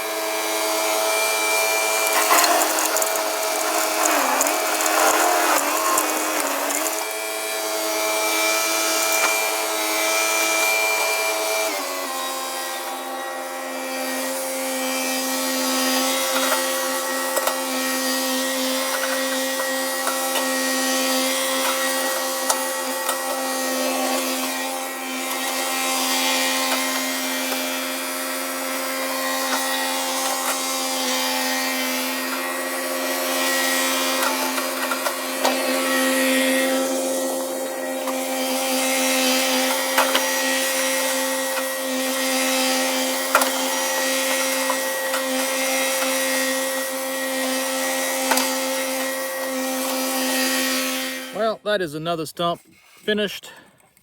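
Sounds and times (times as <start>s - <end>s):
stump grinder running: 0.1s - 51.4s
wood chips ticking: 2.0s - 7.2s, 8.8s - 9.6s.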